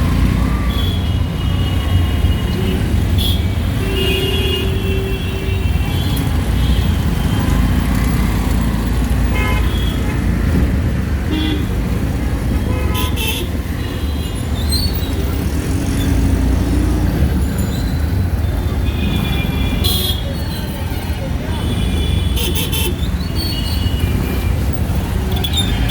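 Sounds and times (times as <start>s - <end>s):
engine and road rumble: 0.0s - 25.9s
vehicle horns honking: 9.2s - 10.3s, 12.6s - 14.4s, 18.8s - 25.9s.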